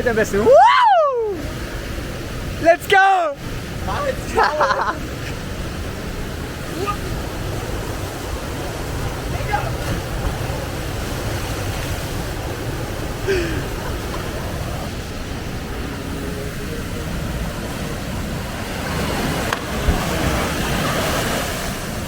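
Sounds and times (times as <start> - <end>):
waterfall rushing: 0.0 - 22.0
wind buffeting microphone: 0.0 - 22.0
person shouting: 0.4 - 1.5, 6.7 - 7.2.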